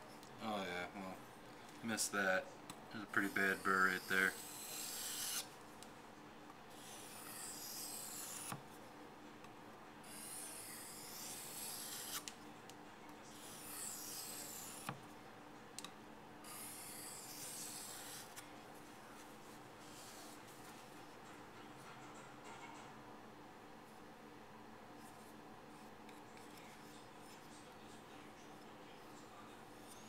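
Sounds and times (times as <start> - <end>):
knife scraping on whetstone: 3.1 - 5.5, 6.7 - 8.6.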